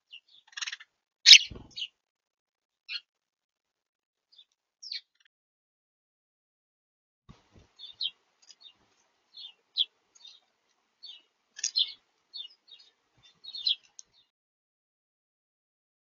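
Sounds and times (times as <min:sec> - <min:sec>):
small birds chirping: 0:00.0 - 0:01.9, 0:04.3 - 0:05.3, 0:07.3 - 0:14.3.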